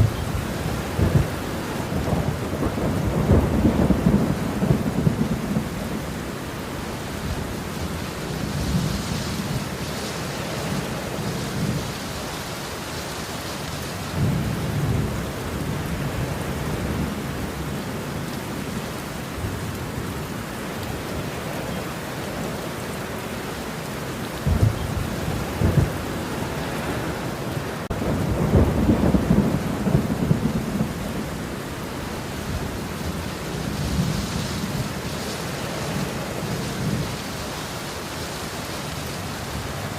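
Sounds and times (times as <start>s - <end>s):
rolling thunder: 0.0s - 6.3s, 24.3s - 31.7s
steady rain falling: 0.0s - 39.9s.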